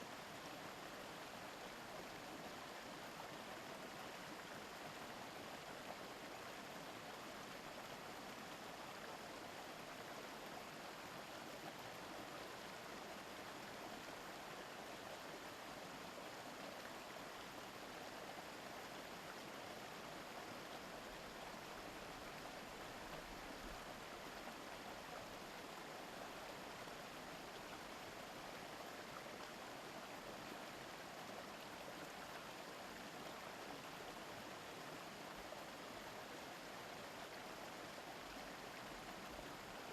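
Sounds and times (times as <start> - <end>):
mountain stream babbling: 0.0 - 39.9.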